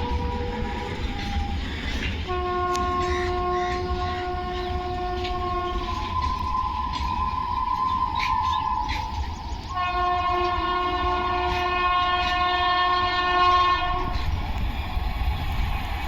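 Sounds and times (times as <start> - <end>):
locomotive horn blasts: 0.0 - 7.2, 9.7 - 14.2
passing train rumble: 0.0 - 16.0
train wheel clicks: 0.0 - 16.0.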